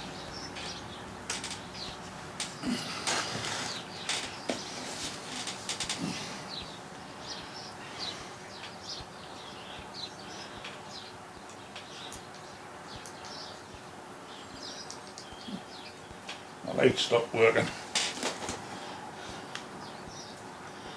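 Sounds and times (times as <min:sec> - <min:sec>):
birds chirping: 0:00.0 - 0:20.9.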